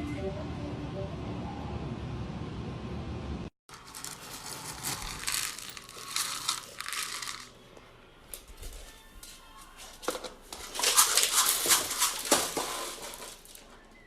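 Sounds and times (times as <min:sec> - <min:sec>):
crinkling and rustling: 0:03.7 - 0:07.7, 0:08.3 - 0:14.0.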